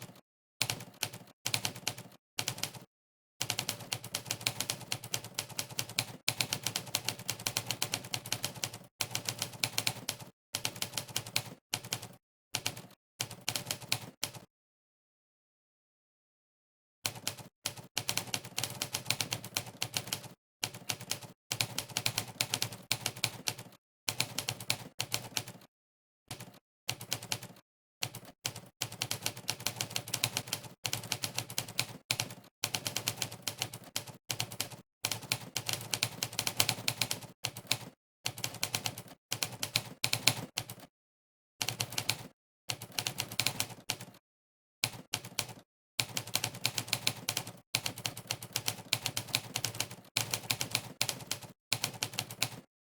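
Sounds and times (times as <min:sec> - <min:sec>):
typewriter keystroke clacks: 0:44.8 - 0:52.7.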